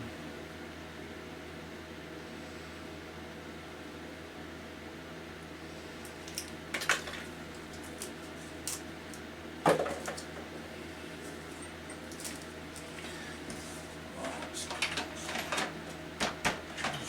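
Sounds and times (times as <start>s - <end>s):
fan heater humming: 0.0s - 17.0s
objects knocking and clattering: 9.6s - 10.4s, 14.3s - 17.0s.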